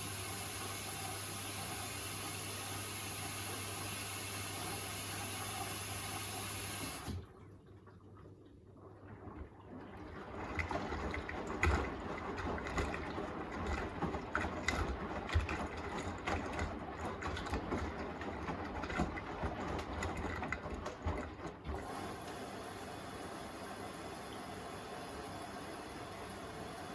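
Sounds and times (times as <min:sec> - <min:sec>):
washing machine drum tumbling: 0:10.1 - 0:22.4.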